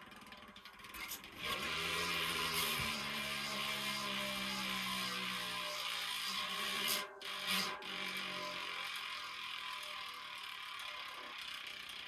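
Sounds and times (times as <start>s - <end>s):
bicycle freehub buzzing clicks: 0.0s - 12.0s.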